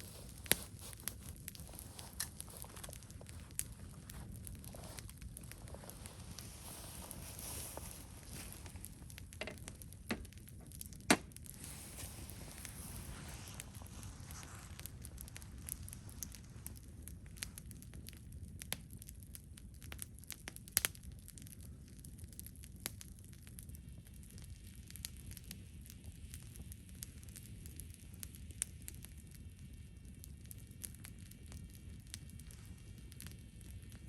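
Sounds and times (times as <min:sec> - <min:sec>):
low steady rumble: 0:00.0 - 0:18.8
campfire crackling and snapping: 0:00.0 - 0:34.0.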